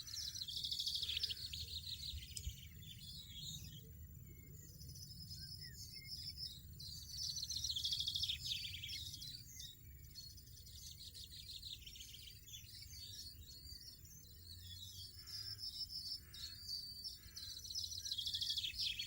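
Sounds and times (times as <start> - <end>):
birds twittering and trilling: 0.0 - 19.0.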